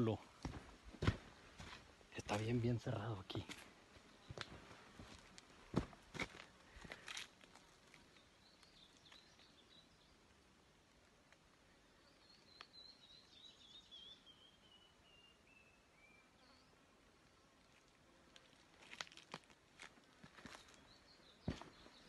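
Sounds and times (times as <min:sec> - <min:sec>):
rustle: 0:00.0 - 0:22.0
distant bird singing: 0:08.0 - 0:10.3, 0:11.7 - 0:17.4, 0:20.5 - 0:22.0.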